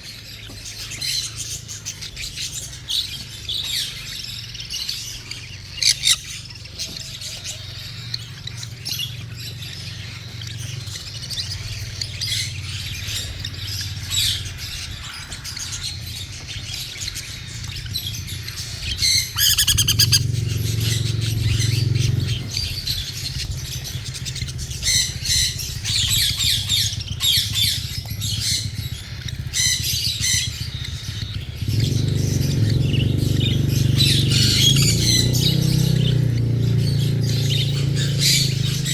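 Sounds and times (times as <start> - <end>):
cockatiel begging chirps and squawks: 18.5 - 20.3.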